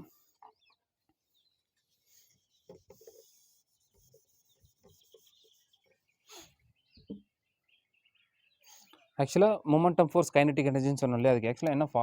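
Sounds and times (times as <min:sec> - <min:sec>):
faint scratching or rubbing: 0:01.8 - 0:06.6.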